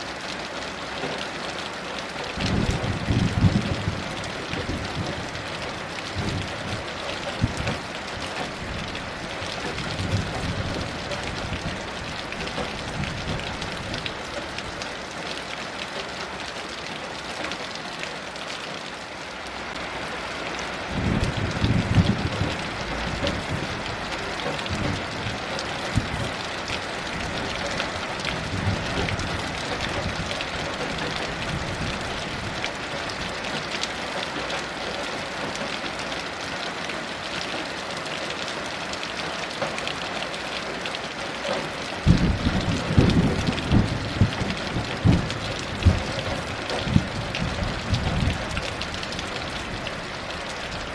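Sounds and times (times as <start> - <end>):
heavy rain: 0.0 - 50.9
distant thunder rumbling: 2.4 - 14.8, 20.9 - 33.3, 42.0 - 49.8.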